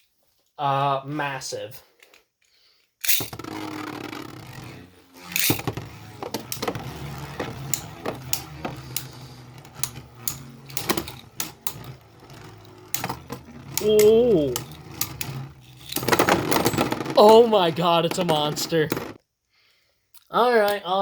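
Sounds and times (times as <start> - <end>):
spinning tops clacking together: 3.1 - 19.2
spinning tops whirring: 3.2 - 19.2.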